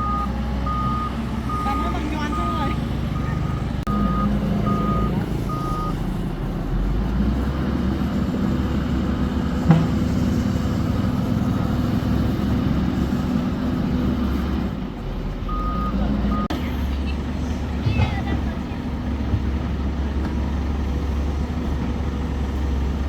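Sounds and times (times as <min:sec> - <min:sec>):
reversing alarm beeping: 0:00.0 - 0:06.0, 0:15.5 - 0:16.5
crane engine running: 0:00.0 - 0:23.0
sharp knock: 0:09.7 - 0:10.3.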